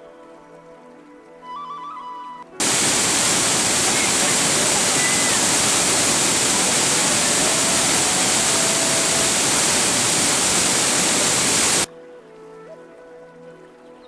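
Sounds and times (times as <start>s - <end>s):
faint music: 0.0s - 14.0s
waterfall rushing: 2.6s - 11.9s.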